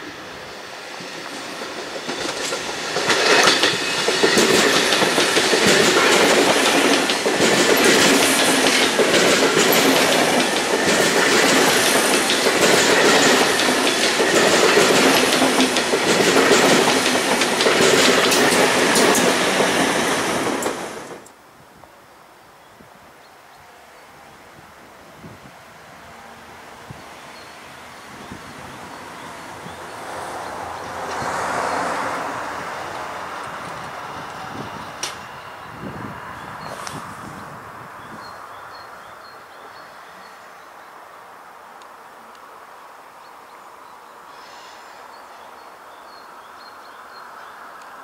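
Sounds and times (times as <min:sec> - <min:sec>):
train wheels rumbling and clacking: 0:00.0 - 0:21.3, 0:27.4 - 0:37.1.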